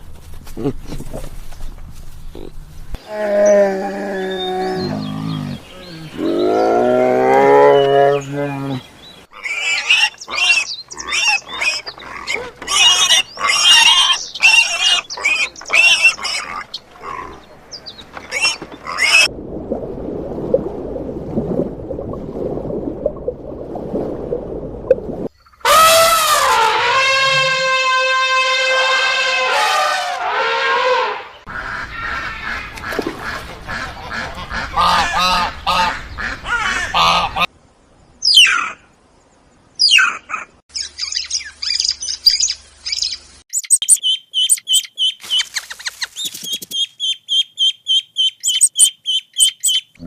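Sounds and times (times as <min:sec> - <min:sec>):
long low animal calls: 0:02.3 - 0:17.4.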